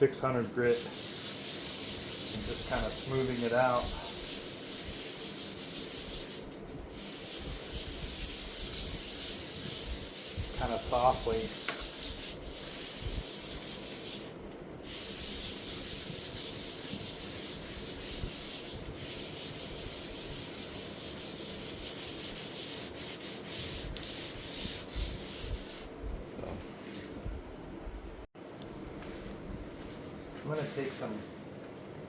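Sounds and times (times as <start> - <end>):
sandpaper rubbing on wood: 0.7 - 14.3, 14.9 - 25.9.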